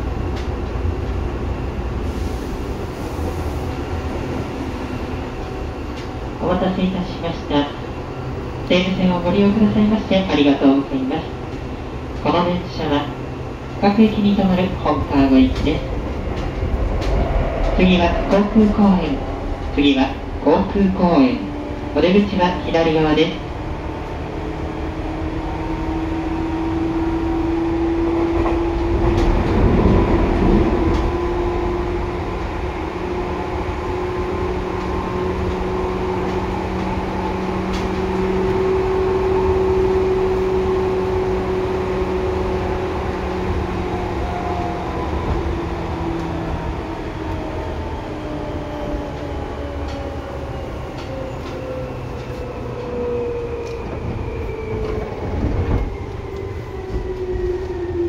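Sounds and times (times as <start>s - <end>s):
electric train rumbling inside: 0.0s - 58.0s
low hum: 15.2s - 22.0s.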